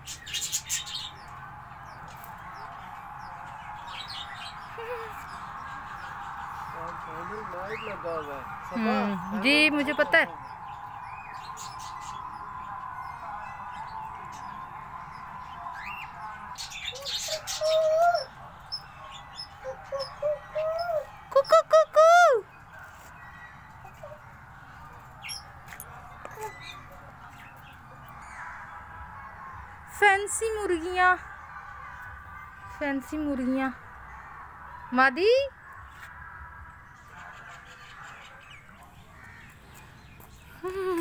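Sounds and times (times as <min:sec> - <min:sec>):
small birds chirping: 0:00.0 - 0:28.8.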